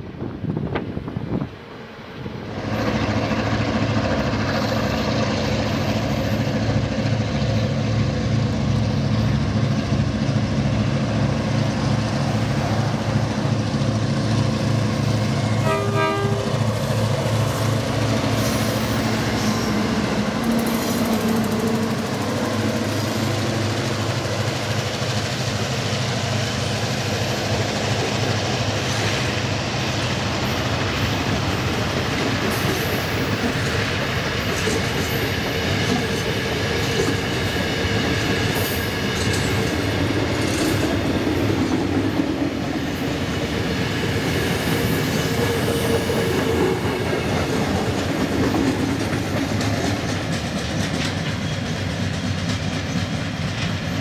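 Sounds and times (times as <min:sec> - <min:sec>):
diesel locomotive passing: 0:00.0 - 0:54.0
wagon wheels clacking on rail joints: 0:31.5 - 0:54.0.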